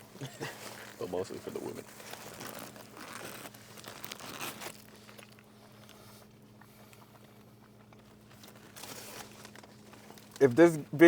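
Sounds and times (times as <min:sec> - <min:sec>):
steady low hum: 0:00.0 - 0:11.0
food wrapper crinkling: 0:00.8 - 0:06.0, 0:07.9 - 0:10.5.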